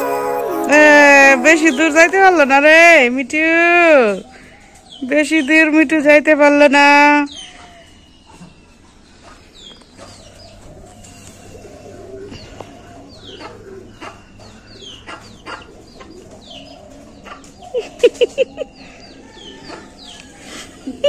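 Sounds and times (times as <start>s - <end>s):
loud low bird calls: 7.2s - 21.0s.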